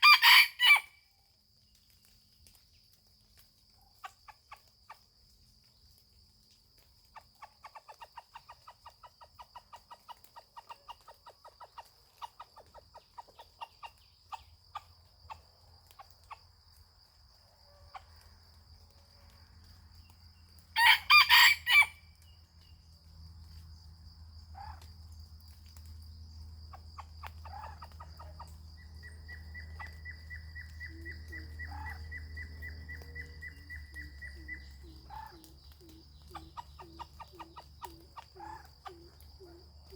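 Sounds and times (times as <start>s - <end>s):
rooster crowing: 0.0s - 1.0s, 20.8s - 22.0s
high insect trill: 10.6s - 39.9s
short clucking calls: 29.8s - 39.9s.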